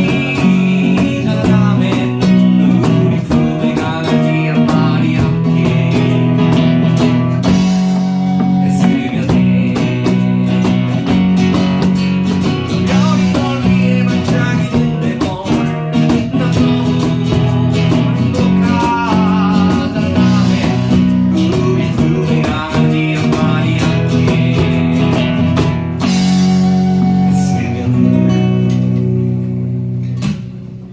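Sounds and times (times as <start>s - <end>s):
person singing: 0.0s - 11.0s, 12.7s - 25.4s, 26.1s - 28.9s
bass line: 0.0s - 30.9s
guitar: 0.0s - 30.9s.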